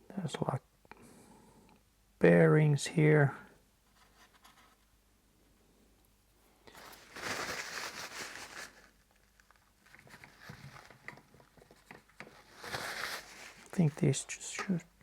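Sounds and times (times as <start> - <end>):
rustling: 6.6 - 15.0.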